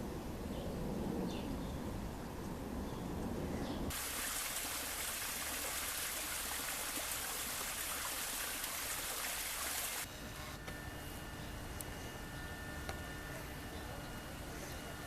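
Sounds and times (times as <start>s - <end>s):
running water rushing: 3.9s - 10.1s.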